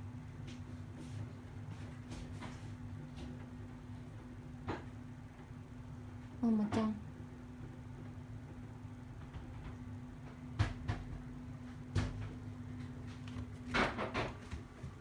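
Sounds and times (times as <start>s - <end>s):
sharp knocks and clatters: 13.2s - 15.0s.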